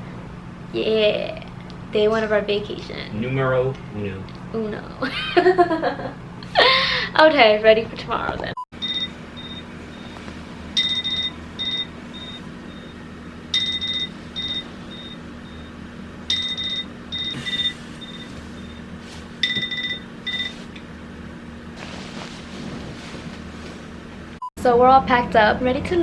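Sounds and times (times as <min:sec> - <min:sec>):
steady low hum: 0:00.0 - 0:26.0
electronic alarm beeping: 0:08.8 - 0:10.2, 0:10.8 - 0:20.7.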